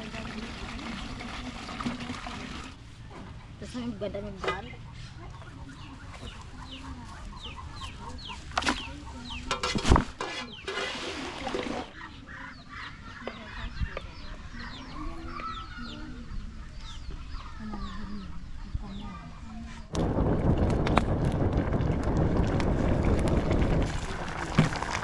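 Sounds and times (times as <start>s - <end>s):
chickens clucking: 3.1s - 18.2s.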